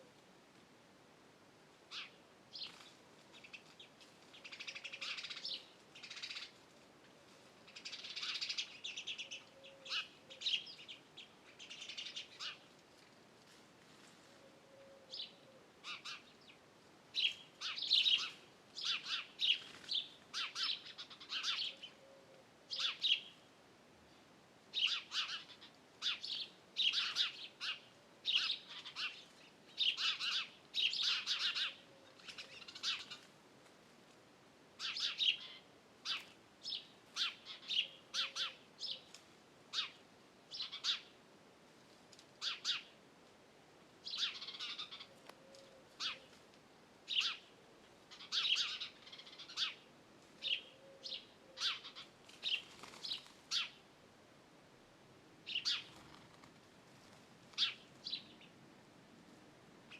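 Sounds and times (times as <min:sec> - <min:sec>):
songbirds chirping and singing: 0:07.7 - 0:12.7, 0:14.7 - 0:16.6, 0:17.2 - 0:23.4, 0:24.8 - 0:33.3, 0:34.8 - 0:39.2, 0:44.0 - 0:46.4, 0:47.1 - 0:53.8.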